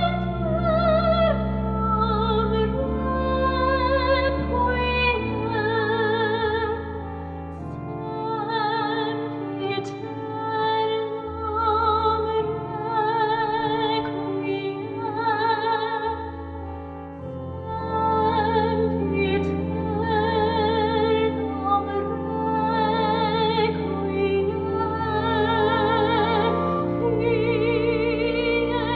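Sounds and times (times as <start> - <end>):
held keyboard chords: 0.0 - 28.9
woman singing operatically: 17.7 - 28.9.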